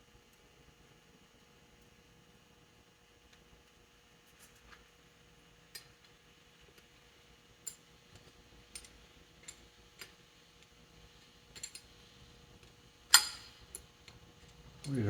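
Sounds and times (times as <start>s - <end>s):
metallic clicks of hand tools: 11.5s - 11.9s, 13.1s - 13.8s.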